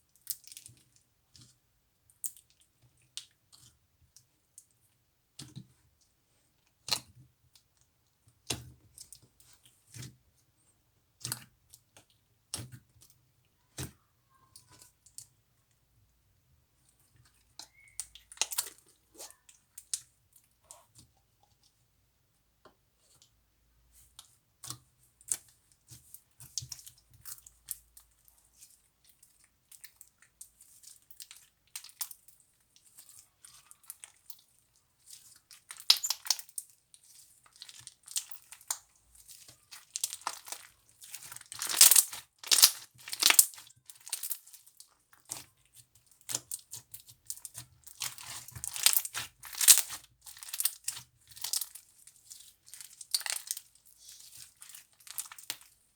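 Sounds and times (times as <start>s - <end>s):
slime crackling and popping: 37.6s - 44.6s, 46.2s - 55.7s.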